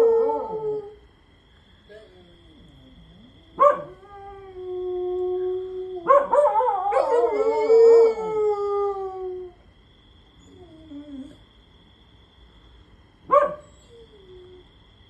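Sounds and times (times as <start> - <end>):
dogs howling: 0.0 - 1.0, 1.9 - 9.6.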